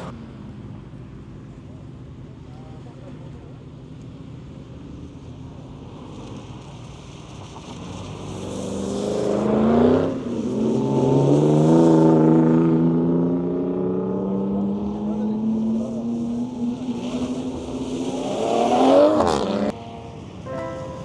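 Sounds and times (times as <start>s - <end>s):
car engine accelerating hard: 7.5s - 20.4s.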